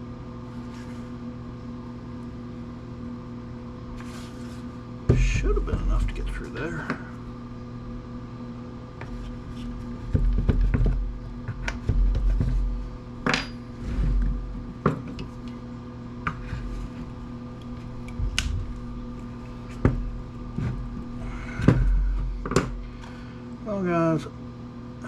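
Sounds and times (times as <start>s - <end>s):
steady low hum: 0.0s - 25.0s
heavy thumps: 19.7s - 22.9s.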